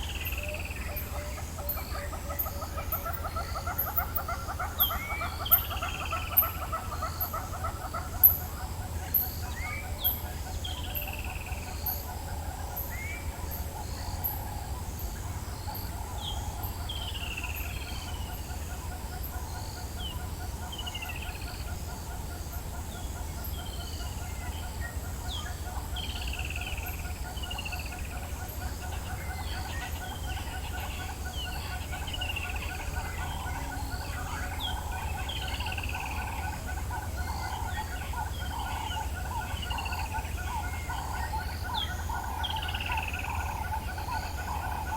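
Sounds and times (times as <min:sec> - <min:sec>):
fast rattling bird call: 0:00.0 - 0:10.3.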